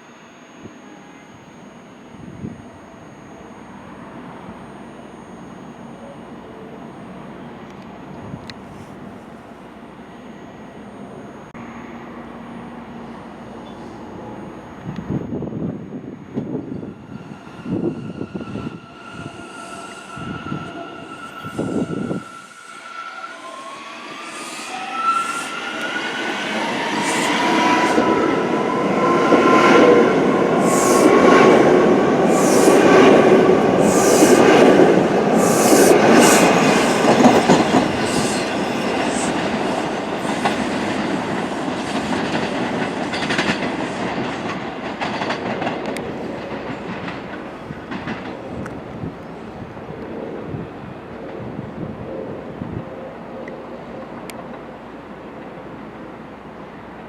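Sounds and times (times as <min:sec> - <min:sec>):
train motor whine: 0:00.0 - 0:49.8
subway train rumbling on rails: 0:00.0 - 0:57.0
wheel squeals: 0:16.4 - 0:31.4.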